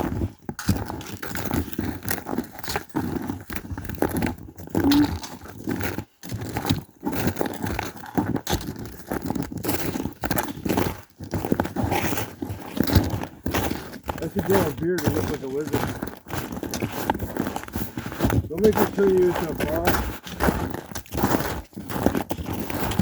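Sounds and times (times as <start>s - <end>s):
crunches and crackles: 0.0s - 23.0s
footsteps: 11.9s - 23.0s.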